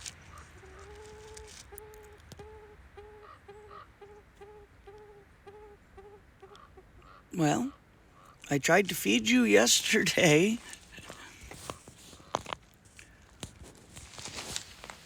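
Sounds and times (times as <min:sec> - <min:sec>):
grouse cooing: 0:00.0 - 0:08.4.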